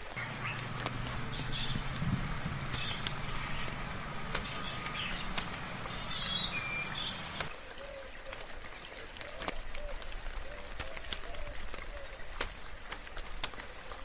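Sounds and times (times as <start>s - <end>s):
birds chirping and whistling: 0.0s - 7.5s
low background rumble: 0.0s - 7.5s
light rain hiss: 0.0s - 14.0s.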